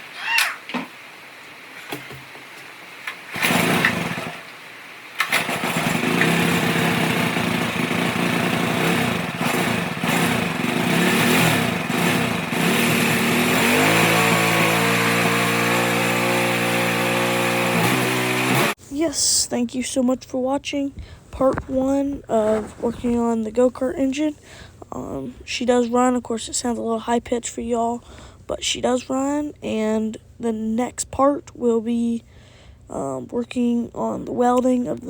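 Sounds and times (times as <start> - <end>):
small engine starting and idling: 3.3 - 4.6, 5.2 - 18.8.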